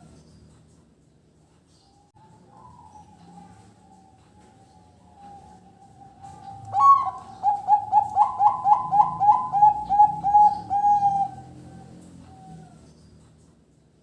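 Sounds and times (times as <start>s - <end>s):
dove cooing: 2.2s - 13.0s.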